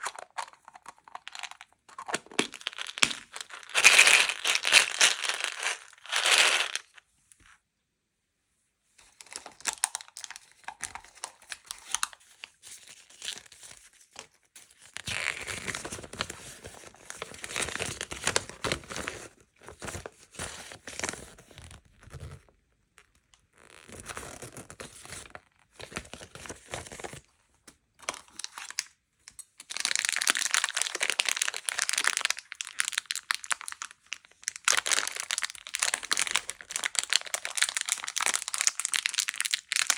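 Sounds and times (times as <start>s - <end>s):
packaging crinkling and tearing: 0.0s - 7.0s, 29.6s - 39.9s.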